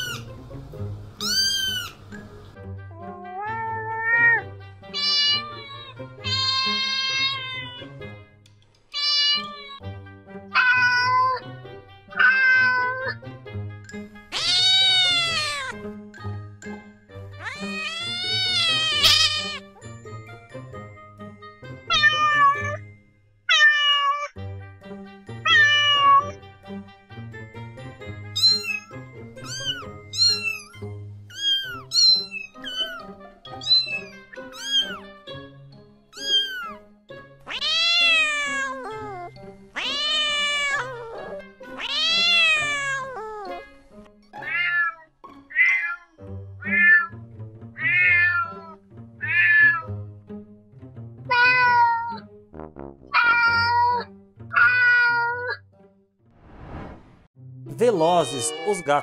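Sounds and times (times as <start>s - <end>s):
cats meowing: 0.0s - 0.2s, 1.2s - 2.1s, 3.0s - 8.0s, 8.9s - 9.8s, 10.5s - 11.5s, 12.1s - 13.2s, 14.3s - 15.8s, 17.4s - 19.7s, 21.9s - 22.8s, 23.5s - 24.3s, 25.4s - 26.4s, 28.4s - 35.1s, 36.2s - 36.8s, 37.5s - 43.6s, 44.4s - 47.2s, 47.8s - 49.9s, 51.3s - 52.2s, 53.2s - 55.6s, 58.0s - 59.0s
background music: 0.0s - 56.2s, 57.4s - 59.0s.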